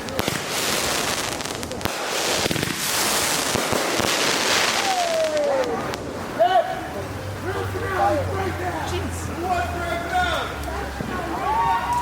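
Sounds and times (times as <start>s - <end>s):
fireworks popping: 0.0s - 7.2s
fireworks hissing: 0.0s - 12.0s.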